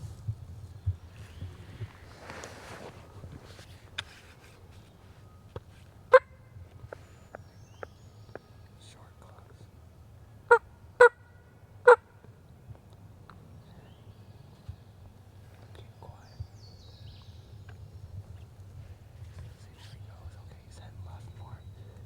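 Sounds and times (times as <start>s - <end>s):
faint bird chirp: 0.2s - 9.9s, 13.2s - 22.0s
turkey call yelps: 10.5s - 12.1s.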